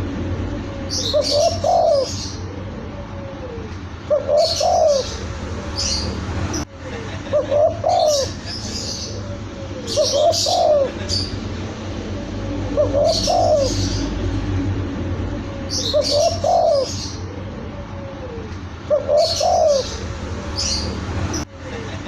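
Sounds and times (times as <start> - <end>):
small birds chirping: 0.4 - 14.4, 15.2 - 22.0
dove cooing: 0.6 - 6.2, 7.3 - 14.4, 15.4 - 20.9.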